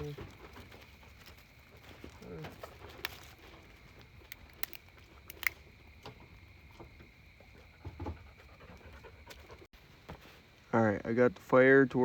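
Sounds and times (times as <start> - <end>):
campfire crackling: 0.0 - 12.0
sharp pops of fire: 4.3 - 5.6.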